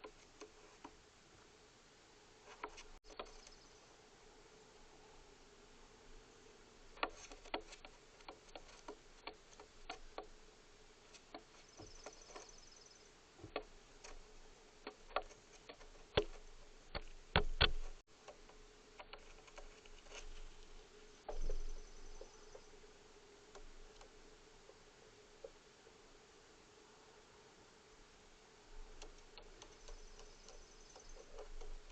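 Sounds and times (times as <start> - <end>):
taps and clicks at a feeder: 7.0 - 10.3, 14.8 - 20.3, 21.3 - 22.7, 28.9 - 31.9.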